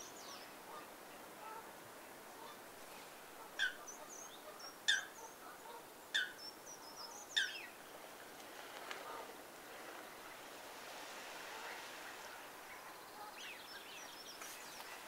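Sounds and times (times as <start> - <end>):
bird sharp calls: 3.4 - 7.8.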